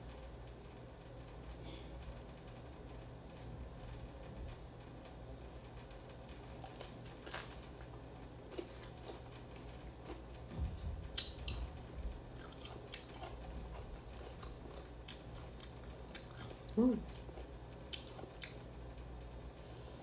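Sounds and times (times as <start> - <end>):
biting and chewing mango: 6.5 - 10.4, 11.1 - 18.6.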